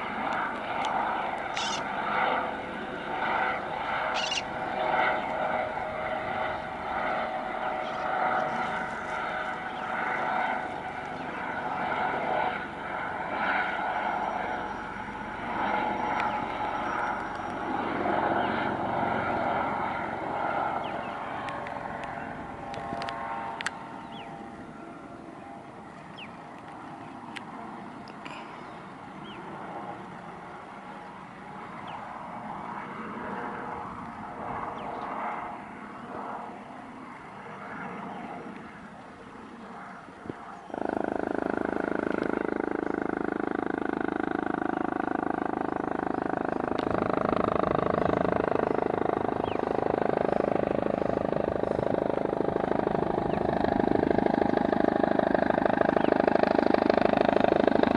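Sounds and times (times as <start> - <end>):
engine and rotor rush: 0.0 - 57.9
helicopter turbine whine: 0.0 - 57.9.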